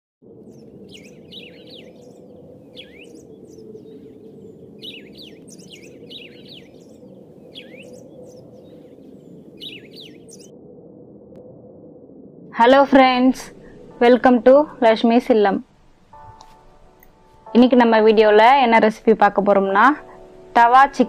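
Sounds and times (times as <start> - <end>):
birds chirping: 0.4 - 10.5.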